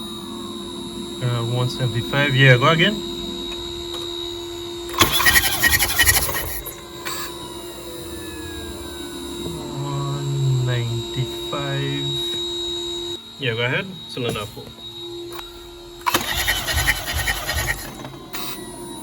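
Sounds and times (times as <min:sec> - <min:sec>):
steady hum: 0:00.0 - 0:19.0
engine cranking by starter motor: 0:04.8 - 0:09.6, 0:16.0 - 0:18.9.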